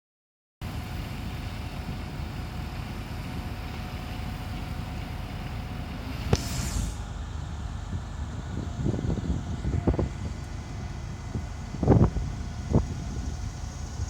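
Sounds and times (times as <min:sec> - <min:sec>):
street sweeper engine drone: 0:00.6 - 0:14.0
short hiss of air: 0:06.0 - 0:07.2.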